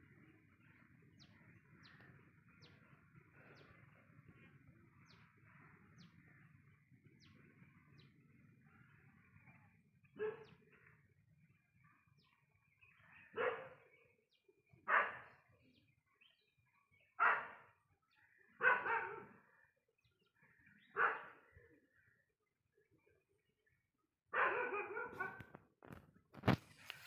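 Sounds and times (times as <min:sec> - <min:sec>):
dog barking: 0:10.2 - 0:10.5, 0:13.4 - 0:13.8, 0:14.9 - 0:15.3, 0:17.2 - 0:17.6, 0:18.6 - 0:19.4, 0:21.0 - 0:21.4, 0:24.3 - 0:25.5.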